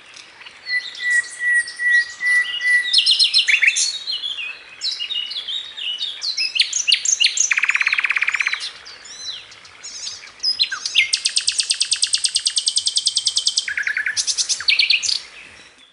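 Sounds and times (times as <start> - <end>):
songbird singing: 0.0 - 15.9.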